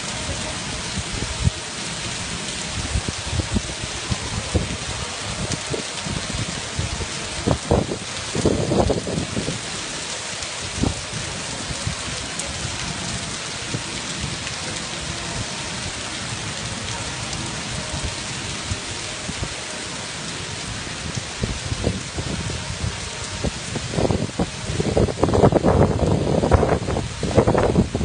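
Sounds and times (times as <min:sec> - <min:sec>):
heavy rain pouring: 0:00.0 - 0:28.0
wind bumps on microphone: 0:21.1 - 0:28.0.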